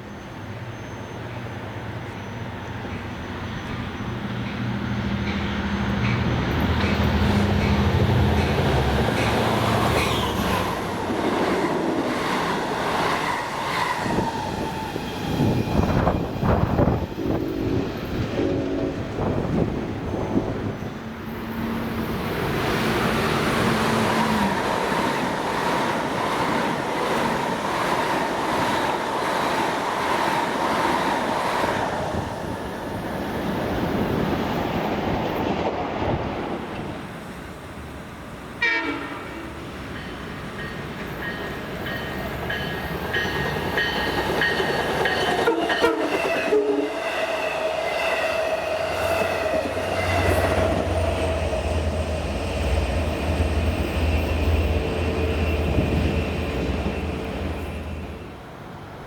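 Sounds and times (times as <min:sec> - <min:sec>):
train wheels on rails: 0:00.0 - 0:59.0
train horn: 0:17.1 - 0:20.8, 0:38.6 - 0:39.6, 0:45.4 - 0:47.0, 0:48.5 - 0:51.1.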